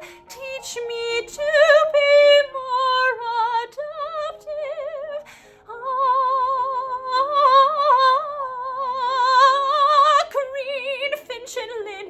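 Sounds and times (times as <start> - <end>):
woman singing soprano: 0.0 - 12.0
singer breathing in: 5.2 - 5.7.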